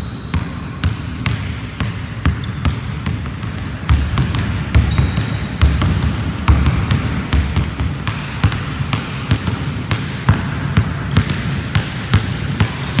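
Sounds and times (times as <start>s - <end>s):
shoe squeaks: 0.0s - 1.6s, 2.4s - 2.7s, 3.3s - 6.9s, 8.8s - 9.4s, 10.7s - 13.0s
basketball bouncing on court: 0.0s - 13.0s.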